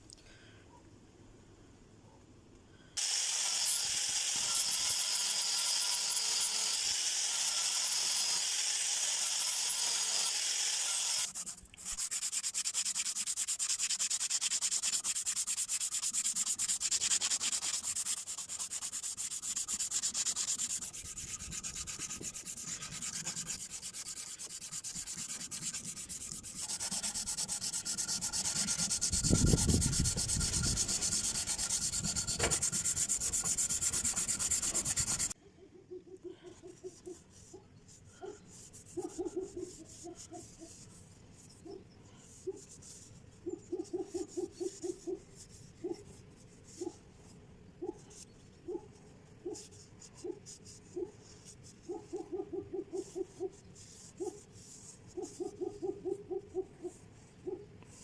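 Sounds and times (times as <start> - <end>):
sanding steel knife: 3.0 - 35.4, 38.6 - 41.0.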